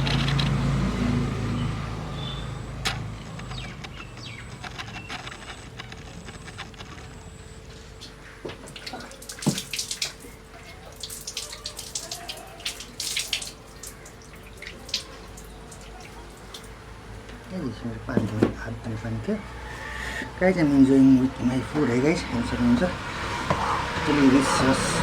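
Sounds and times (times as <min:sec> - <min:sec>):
water splashes and drips: 0:08.0 - 0:17.3
water poured over hands: 0:08.7 - 0:16.8.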